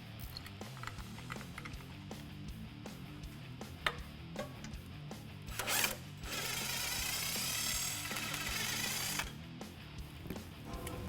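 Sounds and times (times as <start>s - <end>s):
background music with steady beat: 0.0s - 11.0s
power tool driving bolt: 5.5s - 9.4s.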